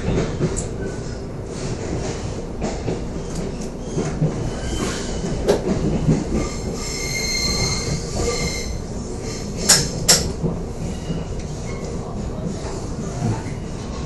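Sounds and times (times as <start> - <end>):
train wheels rumbling: 0.0 - 14.0
high wheel squeal: 6.4 - 9.4.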